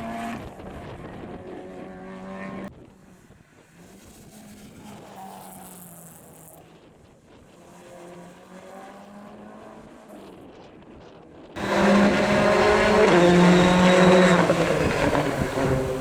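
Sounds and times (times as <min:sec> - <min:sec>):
rally car engine revving: 0:11.6 - 0:16.0.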